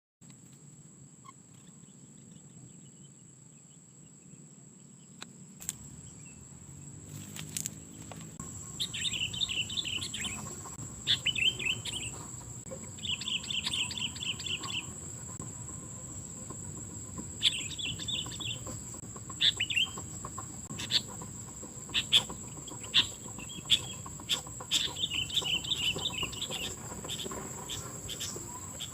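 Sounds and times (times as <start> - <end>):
bird chattering song: 7.6 - 28.9.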